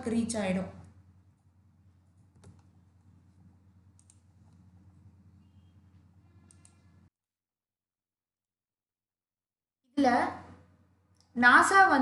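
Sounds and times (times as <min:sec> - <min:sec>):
faint room hum: 0:00.0 - 0:07.1
soft clicks: 0:02.2 - 0:02.8, 0:03.9 - 0:04.7, 0:06.0 - 0:06.9.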